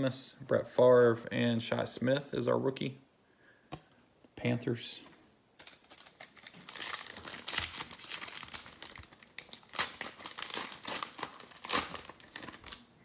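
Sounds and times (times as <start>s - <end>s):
plastic wrapper crinkling and tearing: 5.6s - 12.9s.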